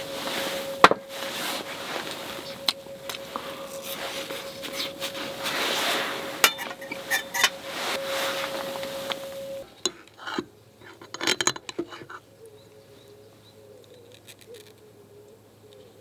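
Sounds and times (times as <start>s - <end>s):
steady hiss with faint tone: 0.0s - 10.9s
metal cookware clinking: 6.3s - 7.9s, 9.6s - 12.2s.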